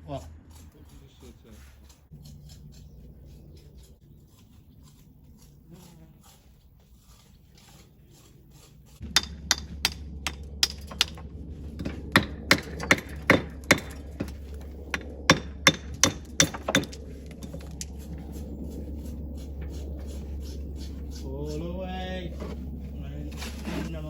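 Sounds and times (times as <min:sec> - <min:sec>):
low machine hum: 0:02.1 - 0:24.0
hammer strikes on metal: 0:09.0 - 0:17.0.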